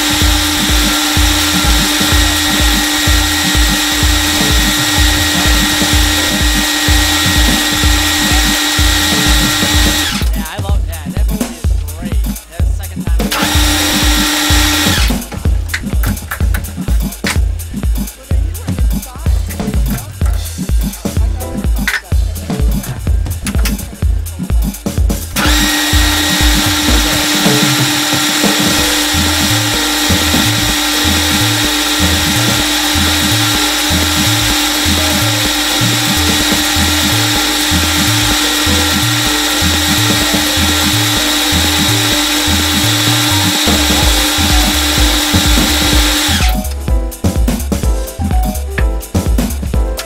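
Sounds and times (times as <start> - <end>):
metal lathe cutting: 0.0 - 46.8
background music with bass line: 0.0 - 50.0.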